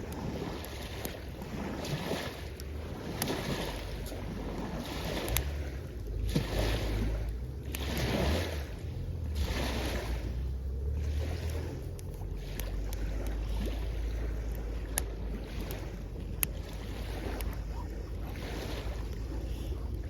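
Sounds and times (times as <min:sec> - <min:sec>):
campfire crackles: 0:00.0 - 0:20.0
small waves washing on shore: 0:00.0 - 0:20.0
wind rumble on microphone: 0:00.0 - 0:20.0.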